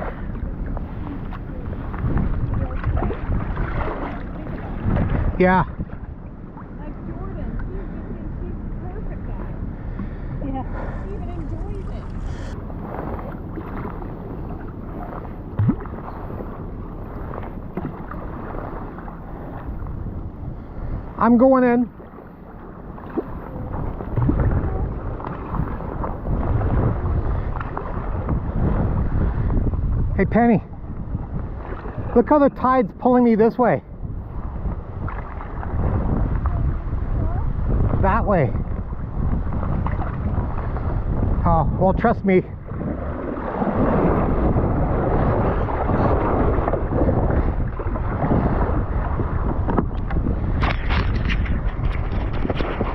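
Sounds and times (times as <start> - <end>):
water sloshing and splashing: 0.0 - 52.9
wind buffeting microphone: 0.0 - 52.9
sharp splashes: 1.7 - 5.4.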